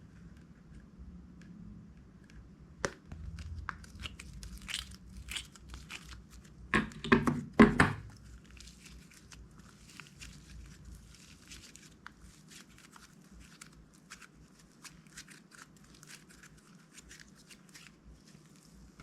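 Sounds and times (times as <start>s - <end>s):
slime crinkling and crackling: 2.9s - 6.8s, 8.0s - 19.0s.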